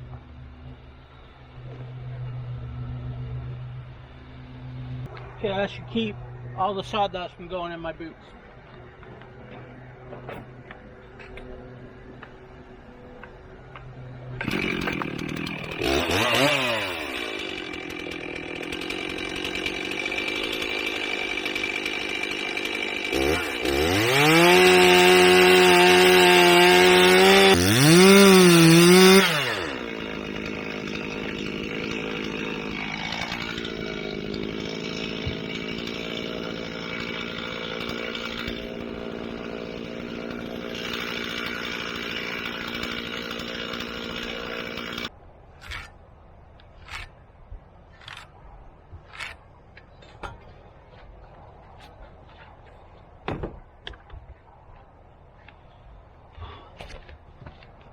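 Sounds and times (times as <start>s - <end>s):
chainsaw starting and revving: 14.2s - 45.1s.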